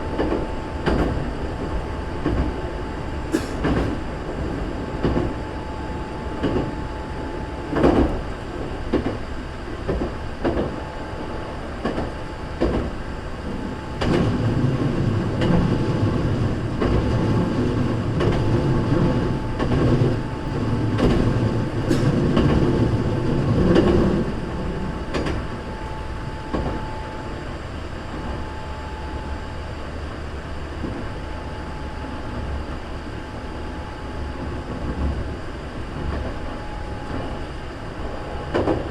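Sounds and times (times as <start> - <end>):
electric train running: 0.0 - 38.9.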